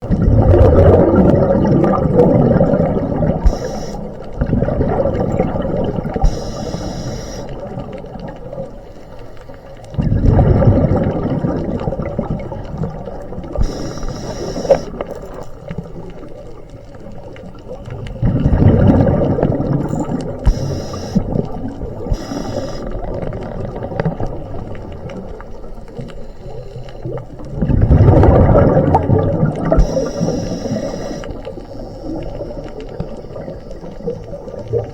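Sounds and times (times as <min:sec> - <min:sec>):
gurgling rush of bubbles: 0:00.0 - 0:08.9, 0:09.8 - 0:34.9
regulator hissing: 0:03.4 - 0:04.2, 0:06.2 - 0:07.6, 0:13.6 - 0:15.0, 0:20.5 - 0:23.0, 0:29.8 - 0:32.2.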